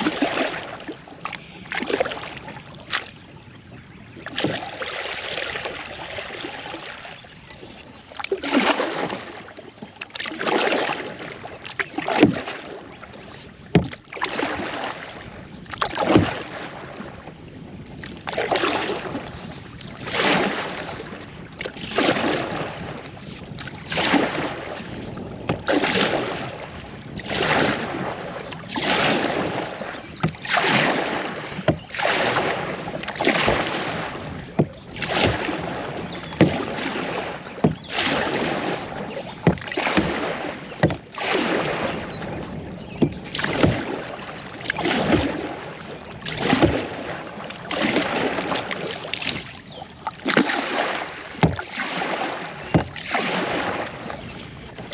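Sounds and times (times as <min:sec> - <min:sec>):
kayak paddle splashing in water: 0:00.0 - 0:54.9.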